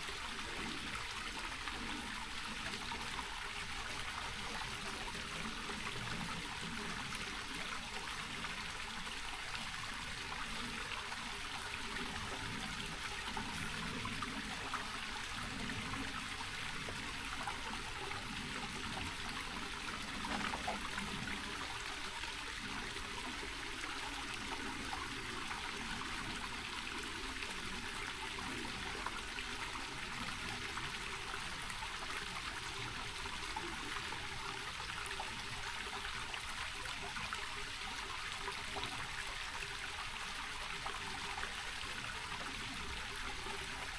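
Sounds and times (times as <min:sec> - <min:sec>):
creek water over stones: 0:00.0 - 0:43.9.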